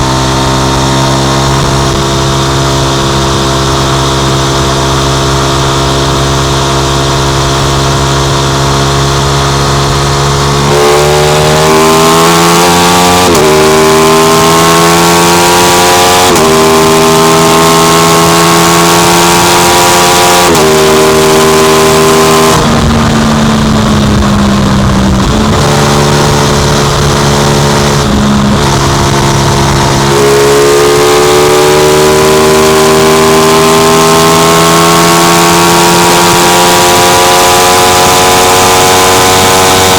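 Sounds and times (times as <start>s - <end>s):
motorcycle engine accelerating: 0.0s - 39.9s
wind rushing: 22.5s - 31.6s.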